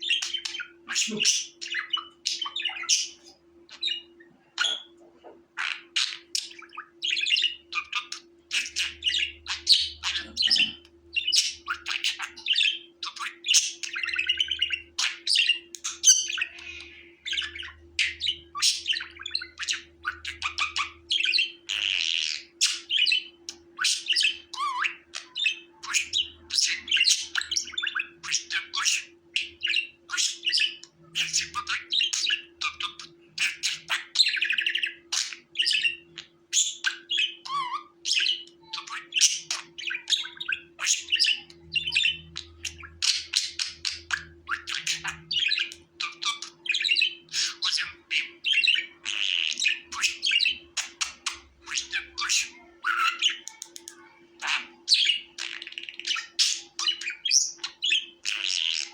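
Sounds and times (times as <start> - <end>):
budgerigar chattering and warbling: 0.0 - 58.9.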